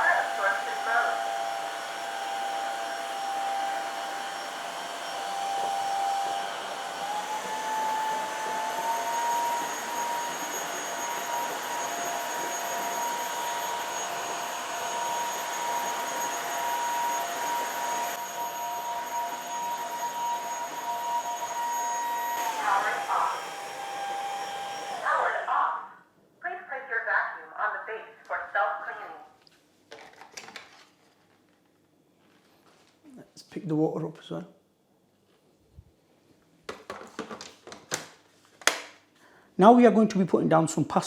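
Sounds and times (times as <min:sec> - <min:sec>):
floor cleaner suction and whine: 0:00.0 - 0:25.8.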